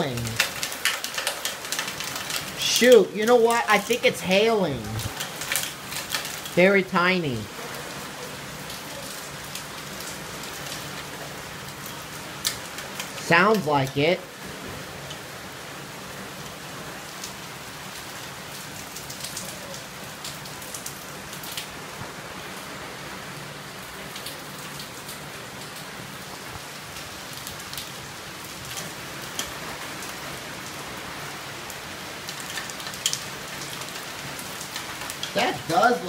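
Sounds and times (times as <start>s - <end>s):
sharp ticks of hail: 0.0s - 6.6s, 9.0s - 14.0s, 31.7s - 36.0s
heavy rain pouring: 0.0s - 36.0s.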